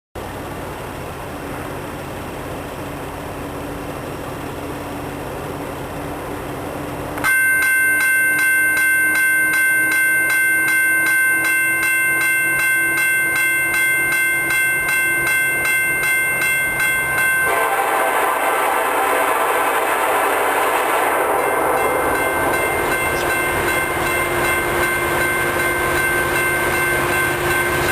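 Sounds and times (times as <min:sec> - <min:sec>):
locomotive engine rumble: 0:00.2 - 0:07.2, 0:09.1 - 0:27.9
passing train rushing: 0:00.3 - 0:27.9
train air horn chord: 0:17.4 - 0:24.0.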